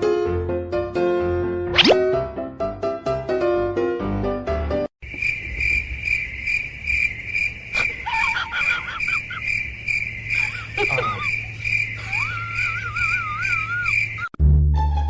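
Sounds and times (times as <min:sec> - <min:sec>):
insects chirping: 0:05.0 - 0:14.4
brief gliding calls: 0:10.4 - 0:14.3.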